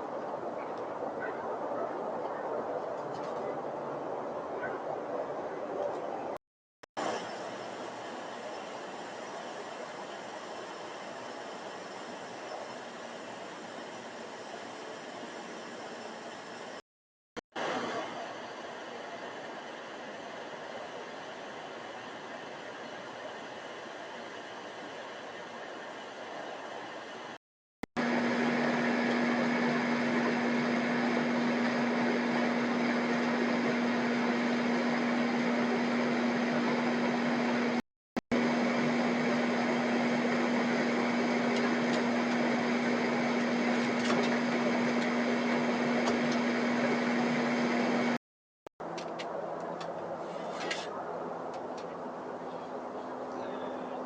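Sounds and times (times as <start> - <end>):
low mechanical hum: 7.0 - 16.8, 28.0 - 37.8, 38.4 - 48.2.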